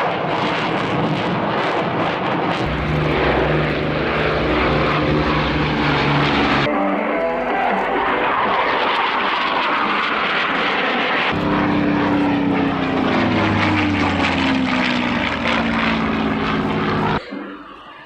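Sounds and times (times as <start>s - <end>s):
aircraft flying past: 2.6s - 6.7s, 8.0s - 17.2s.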